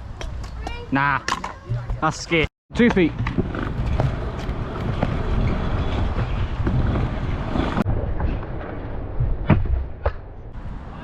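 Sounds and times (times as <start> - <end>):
scooter wheels rolling on concrete: 0.0 - 7.9
wind on microphone: 3.2 - 9.9.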